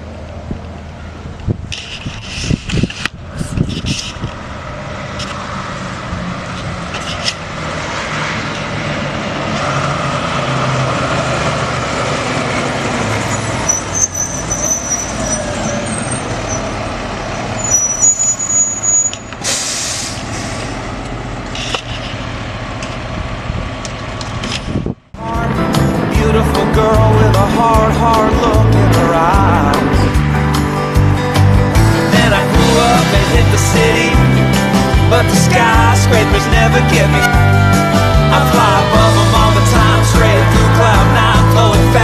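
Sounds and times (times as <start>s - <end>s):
diesel truck engine running: 0.0s - 42.0s
air brakes hissing: 17.4s - 20.8s.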